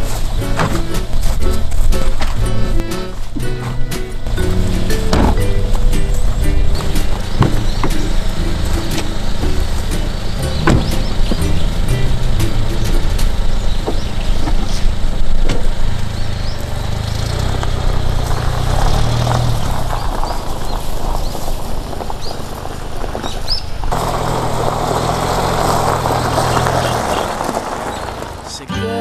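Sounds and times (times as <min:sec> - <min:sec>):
car engine: 0:00.0 - 0:28.7
road noise: 0:00.0 - 0:29.0.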